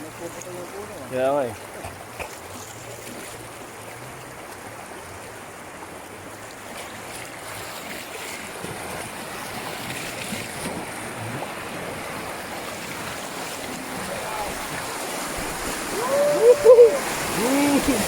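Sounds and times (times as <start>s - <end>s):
river current rushing: 0.0s - 18.0s.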